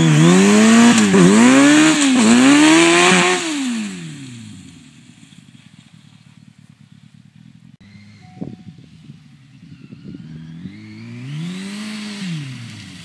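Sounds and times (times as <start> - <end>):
motorcycle engine revving: 0.0 - 13.0
engine idling: 4.2 - 9.9.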